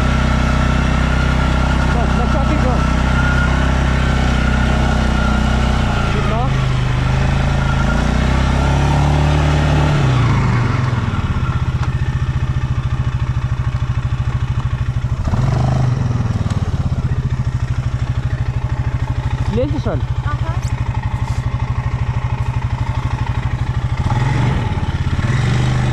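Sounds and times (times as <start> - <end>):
atv engine running and idling: 0.0 - 25.9.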